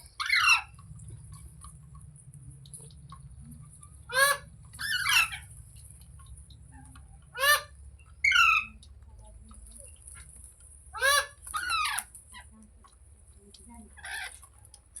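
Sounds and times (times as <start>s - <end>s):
parrot screeching calls: 0.1s - 0.8s, 4.1s - 5.5s, 7.4s - 8.7s, 11.0s - 12.1s.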